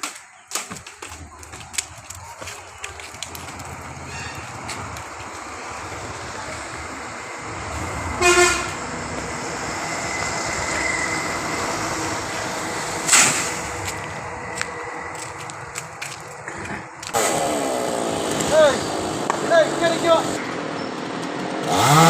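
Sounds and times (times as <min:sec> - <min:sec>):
steady background noise: 0:00.0 - 0:22.0
horn toot: 0:04.0 - 0:04.7, 0:08.1 - 0:08.9.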